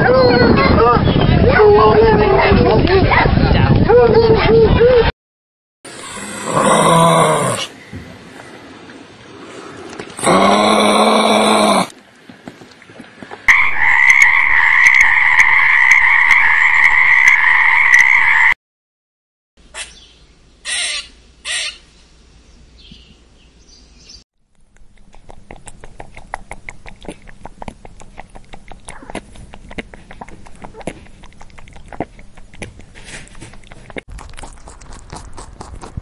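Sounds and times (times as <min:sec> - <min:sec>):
squirrel calls: 0:19.7 - 0:21.9.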